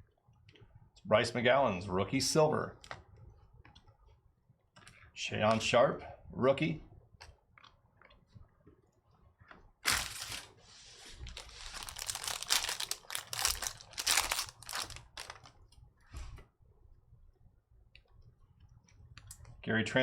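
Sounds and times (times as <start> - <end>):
foil wrapper crinkling: 9.8 - 15.6.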